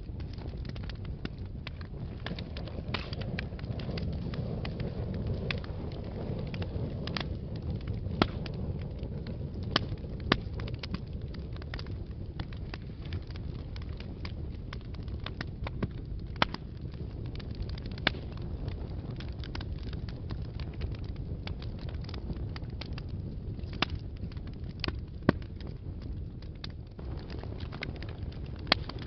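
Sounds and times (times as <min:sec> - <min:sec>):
fire crackling and popping: 0:00.0 - 0:29.0
rumble of flames: 0:00.0 - 0:29.0.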